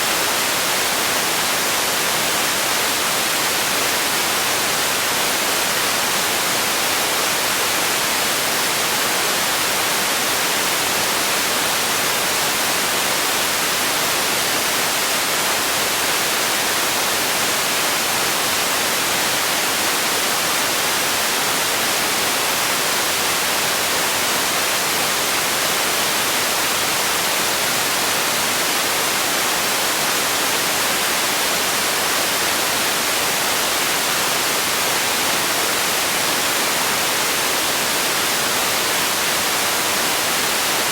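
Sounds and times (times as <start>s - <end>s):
steady white noise hiss: 0.0s - 40.9s.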